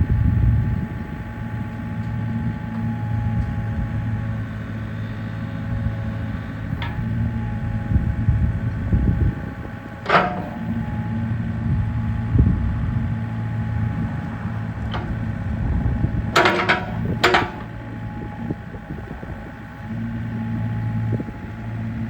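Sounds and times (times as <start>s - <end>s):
excavator diesel engine humming: 0.0s - 22.0s
sharp knocks: 10.0s - 11.0s, 16.4s - 17.8s.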